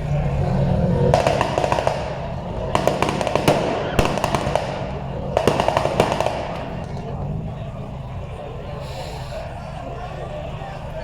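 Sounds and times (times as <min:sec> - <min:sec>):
exhaust popping and banging: 0:00.0 - 0:08.4
car engine revving: 0:00.0 - 0:11.0.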